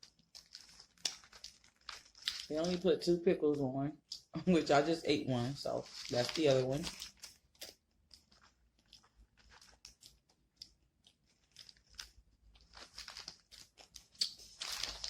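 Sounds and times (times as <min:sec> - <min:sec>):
crunchy chewing: 0:00.0 - 0:02.8, 0:05.8 - 0:15.0.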